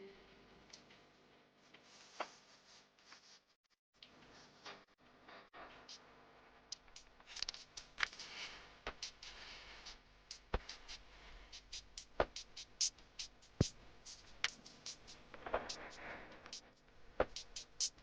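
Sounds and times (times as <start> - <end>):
sparse electronic beat music: 6.7 - 18.0.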